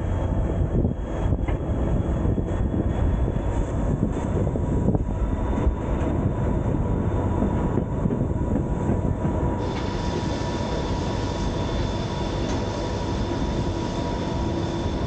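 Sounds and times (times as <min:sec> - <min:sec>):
train wheels rumbling on rails: 0:00.0 - 0:15.0
wind on microphone: 0:00.0 - 0:15.0
faint steady whine: 0:09.6 - 0:15.0.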